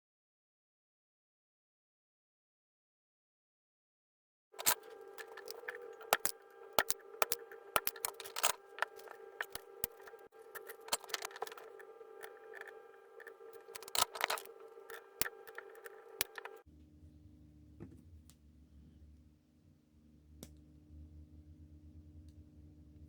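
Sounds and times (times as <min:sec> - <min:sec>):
hand tools clicking and snipping: 0:04.6 - 0:16.6
faint low hum: 0:04.6 - 0:23.0
steady hum: 0:04.6 - 0:23.0.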